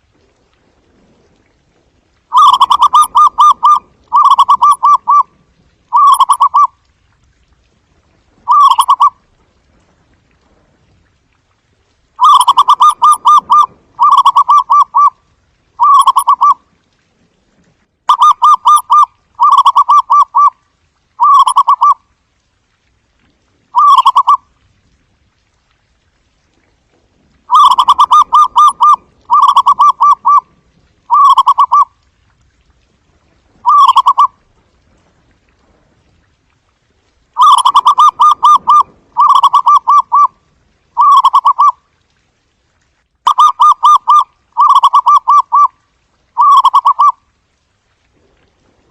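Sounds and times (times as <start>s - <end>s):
dove staccato cooing: 2.3s - 5.3s, 5.9s - 6.7s, 8.5s - 9.2s, 12.2s - 15.1s, 15.8s - 16.6s, 21.2s - 22.0s, 23.8s - 24.4s, 27.5s - 30.5s, 31.1s - 31.9s, 33.6s - 34.3s, 37.4s - 40.3s, 41.0s - 41.8s.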